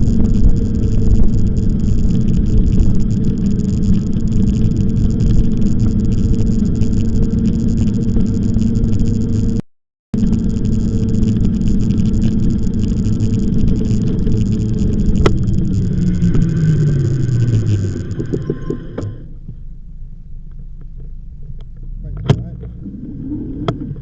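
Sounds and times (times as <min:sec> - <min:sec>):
droning tone falling in pitch: 0:00.0 - 0:09.6, 0:10.2 - 0:24.0
loud rumble of motion: 0:00.0 - 0:09.6, 0:10.2 - 0:24.0.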